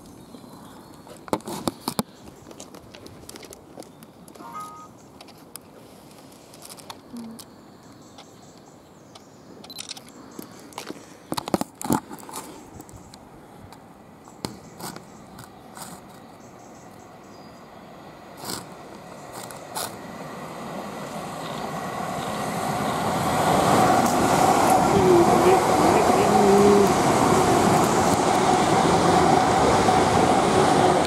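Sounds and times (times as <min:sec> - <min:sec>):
electric train approaching: 0:04.4 - 0:05.0, 0:16.4 - 0:31.0.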